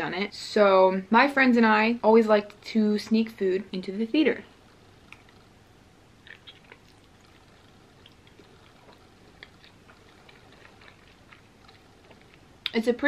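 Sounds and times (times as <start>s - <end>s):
chewing soft food: 4.6s - 5.6s, 6.2s - 12.8s
wet mouth clicks: 5.1s - 5.5s, 6.2s - 12.8s.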